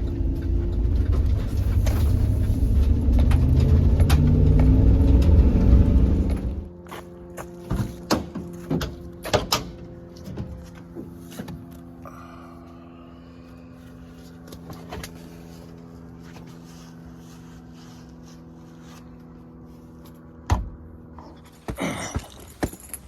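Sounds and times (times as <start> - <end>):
vehicle engine idling: 0.0 - 9.3.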